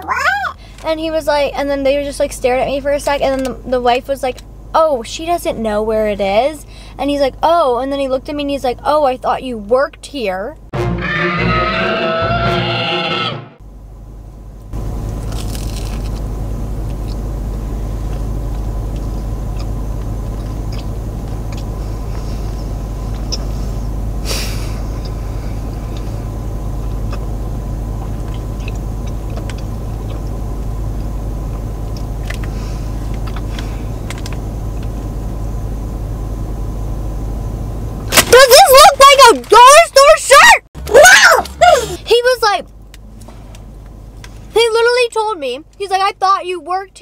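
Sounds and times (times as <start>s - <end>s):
car engine idling: 13.6s - 47.0s
chewing clicks: 18.1s - 21.8s, 28.0s - 30.4s.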